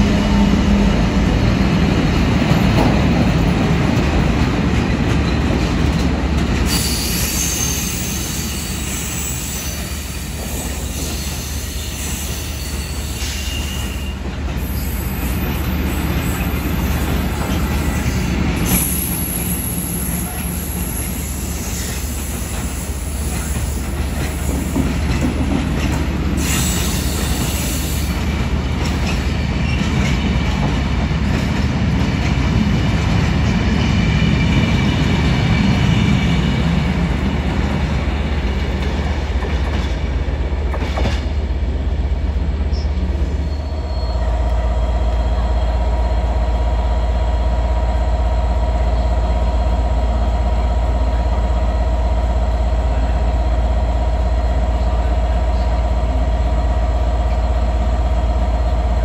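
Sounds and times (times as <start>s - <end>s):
diesel locomotive running: 0.0s - 59.0s
train wheels rumbling on rails: 0.0s - 59.0s
high wheel squeal: 6.7s - 15.3s, 42.7s - 44.4s.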